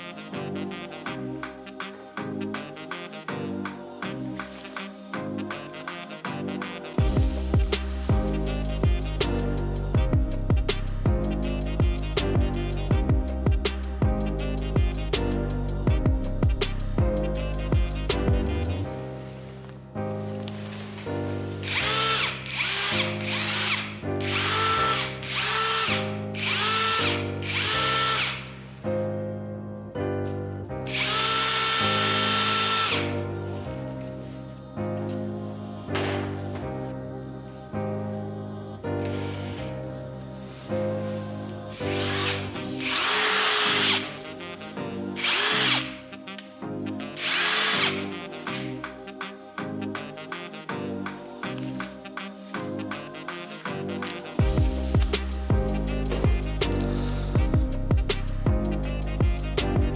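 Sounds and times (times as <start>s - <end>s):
background music: 0.0s - 59.9s
cordless impact driver whining: 21.7s - 28.4s, 30.9s - 33.1s.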